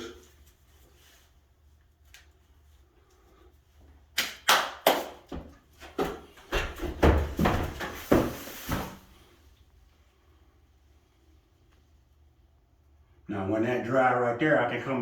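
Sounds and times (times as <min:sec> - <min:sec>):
drywall tool scraping ceiling: 0:07.0 - 0:09.3.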